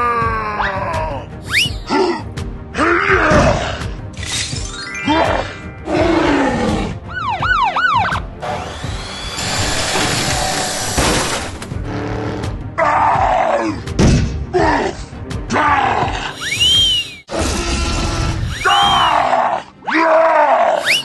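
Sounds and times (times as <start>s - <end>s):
music: 0.0s - 21.0s
cartoon rising whistle: 1.4s - 1.8s, 16.4s - 17.3s, 20.8s - 21.0s.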